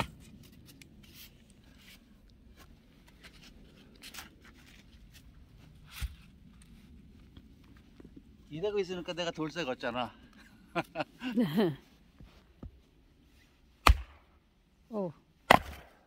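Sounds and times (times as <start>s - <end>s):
axe chopping log: 13.8s - 14.3s, 15.4s - 16.0s.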